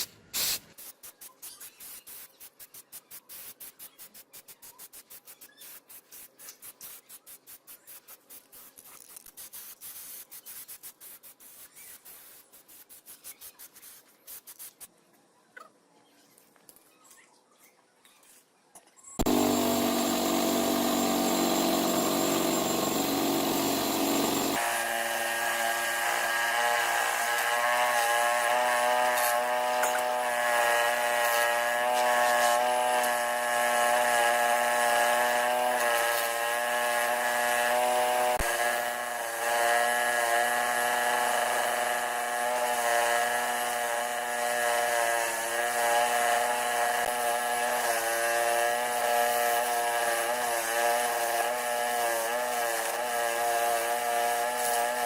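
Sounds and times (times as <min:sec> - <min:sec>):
power tool motor running: 0:19.2 - 0:55.0.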